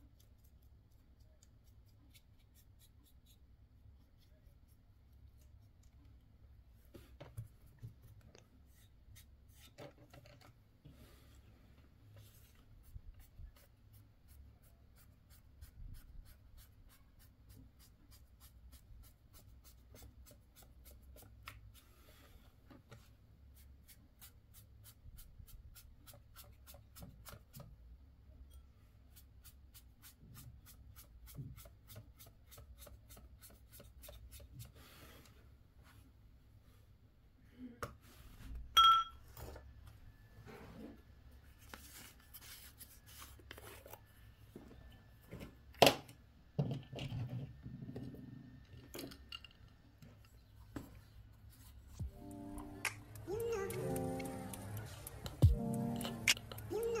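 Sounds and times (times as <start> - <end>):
brush scratching on model: 0.0 - 5.8, 12.2 - 21.9.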